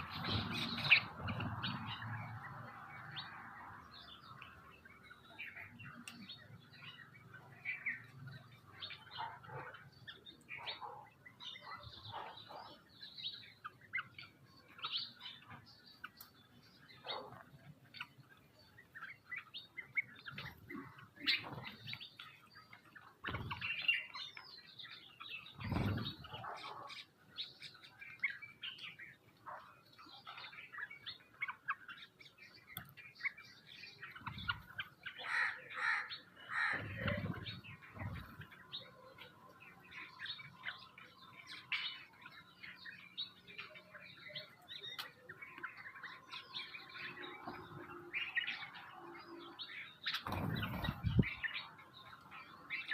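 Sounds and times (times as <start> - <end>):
birds chirping and calling: 0.0 - 52.9
wing flapping: 50.1 - 51.3.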